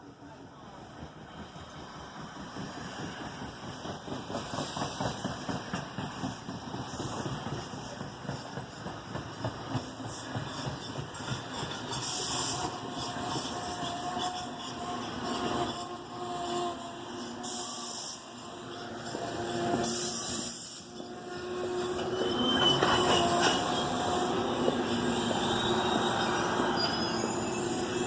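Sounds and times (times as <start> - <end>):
train wheels on rail: 0.0 - 28.0.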